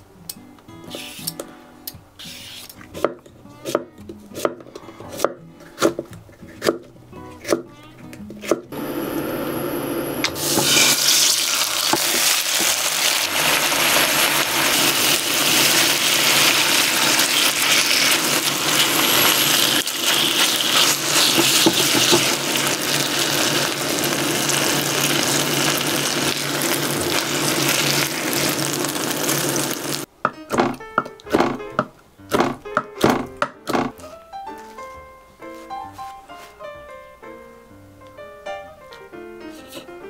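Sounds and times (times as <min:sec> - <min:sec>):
chicken sizzling in frying pan: 0:10.3 - 0:30.1.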